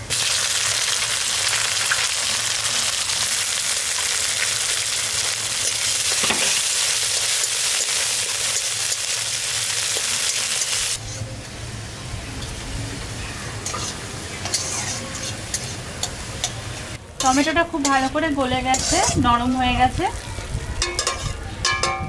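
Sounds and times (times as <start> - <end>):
tomato sizzling in hot oil: 0.0 - 21.6
spatula scraping metal pan: 13.6 - 16.6, 17.2 - 19.4, 20.8 - 21.4.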